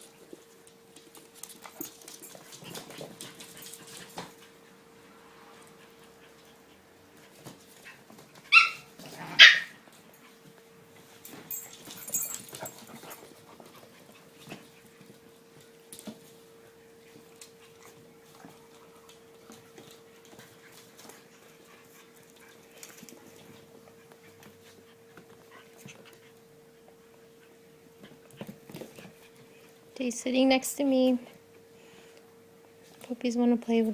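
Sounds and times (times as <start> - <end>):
faint steady hum: 0.0 - 33.9
puppies yelping: 8.5 - 9.8.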